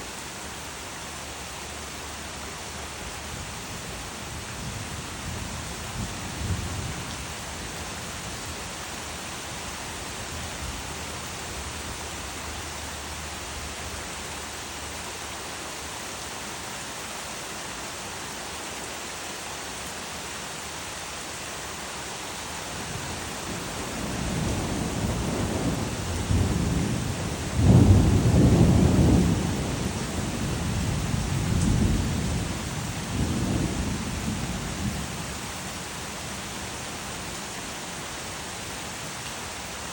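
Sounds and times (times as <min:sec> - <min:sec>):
steady rain: 0:00.0 - 0:39.9
thunder rumbling and crashing: 0:23.9 - 0:34.9.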